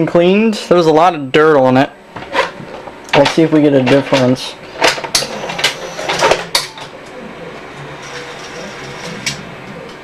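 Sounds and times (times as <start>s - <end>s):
tape deck whirring and humming: 1.7s - 10.0s.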